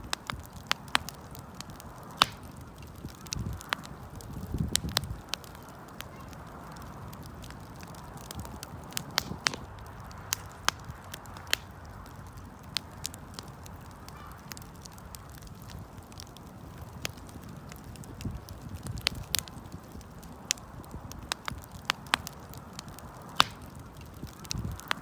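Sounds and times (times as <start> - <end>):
burning wood crackling: 0.0 - 25.0
flames rushing: 0.0 - 25.0.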